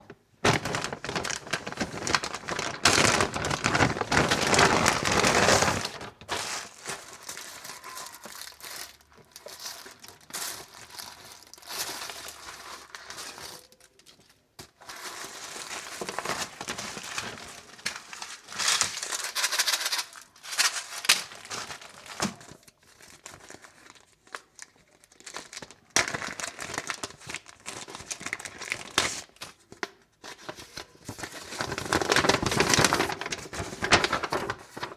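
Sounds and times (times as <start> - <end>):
packaging crinkling: 0.0 - 34.9.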